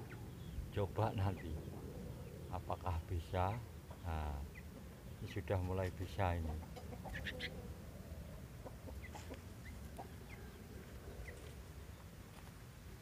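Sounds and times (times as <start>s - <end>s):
faint bird chirps: 6.7s - 12.1s.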